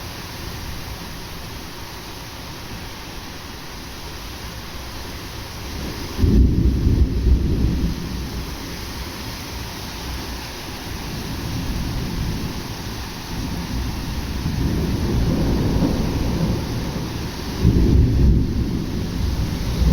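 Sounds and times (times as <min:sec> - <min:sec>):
steady rain: 0:00.0 - 0:19.9
thunder rumbling: 0:05.8 - 0:09.2, 0:11.0 - 0:19.9.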